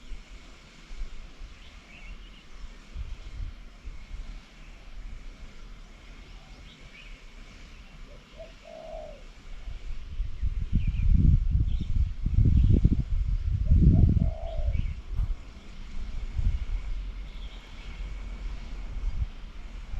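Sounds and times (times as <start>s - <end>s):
birds chirping: 6.4s - 9.2s, 14.2s - 15.0s, 17.2s - 18.2s
dove cooing: 8.1s - 9.3s, 13.9s - 15.0s.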